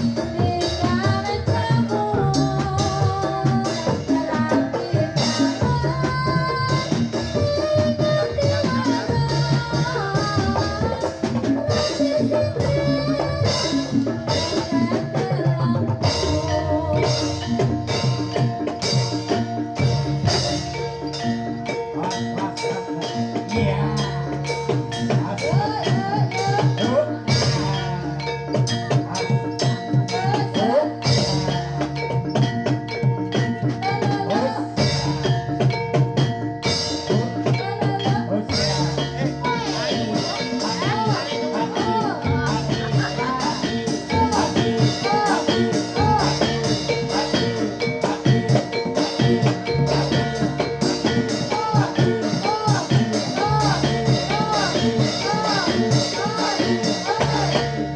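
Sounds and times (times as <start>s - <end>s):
drums: 0.0s - 57.9s
metallophones playing: 0.0s - 57.9s
ringing tuned metal percussion: 0.0s - 57.9s.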